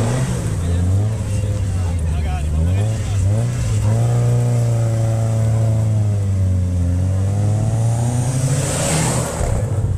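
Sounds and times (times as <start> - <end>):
car engine at high revs: 0.0 - 9.9
car passing by: 7.4 - 9.9.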